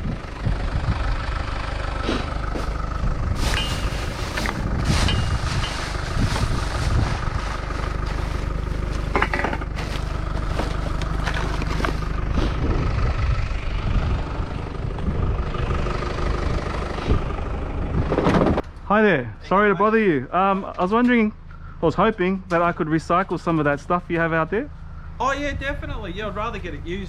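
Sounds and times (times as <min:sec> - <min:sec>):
car engine and road rumble: 0:00.0 - 0:27.0
knocks and rattles: 0:03.4 - 0:08.2, 0:08.8 - 0:13.0.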